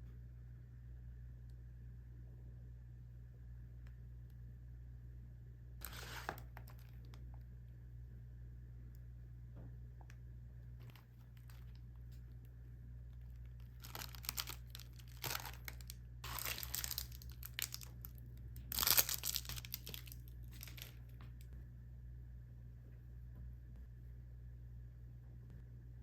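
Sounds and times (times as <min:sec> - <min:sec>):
low room hum: 0:00.0 - 0:26.0
plastic packaging crinkling and tearing: 0:05.8 - 0:07.1, 0:10.8 - 0:11.8, 0:13.6 - 0:21.1.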